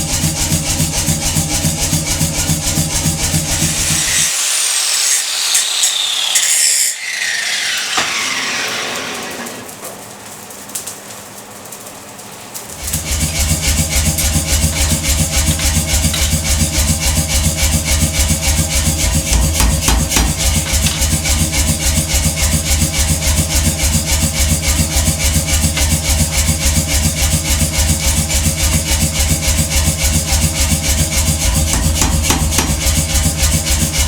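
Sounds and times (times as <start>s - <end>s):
machine pounding: 0.0s - 5.2s, 12.8s - 34.0s.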